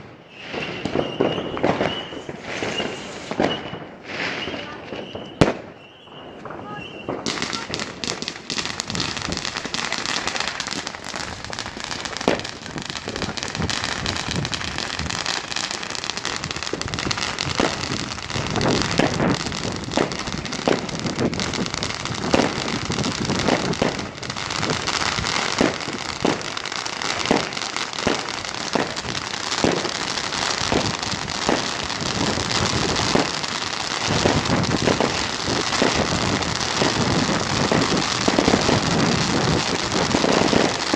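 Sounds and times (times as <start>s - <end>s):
fireworks crackling: 0.0s - 40.9s
fireworks sharp bangs: 0.0s - 40.9s.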